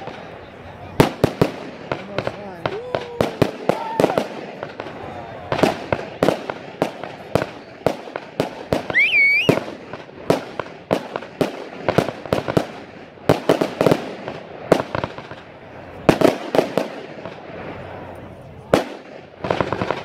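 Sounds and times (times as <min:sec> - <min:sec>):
high wavering firework whistle: 0:08.9 - 0:09.7.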